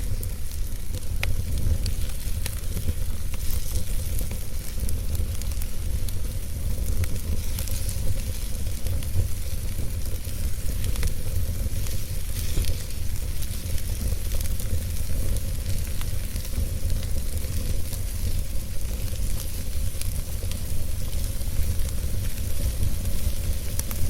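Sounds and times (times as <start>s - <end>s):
burning wood crackling and popping: 0.0s - 24.0s
fire hissing: 0.0s - 24.0s
rumble of fire flames: 0.0s - 24.0s.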